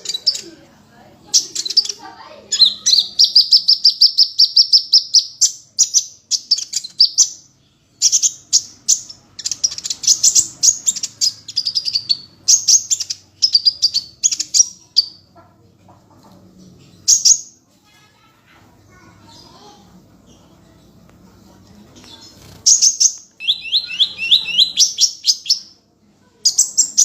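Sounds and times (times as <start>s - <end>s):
songbird trilling and whistling: 0.0s - 0.5s, 1.3s - 15.3s, 22.4s - 25.8s, 26.4s - 27.0s.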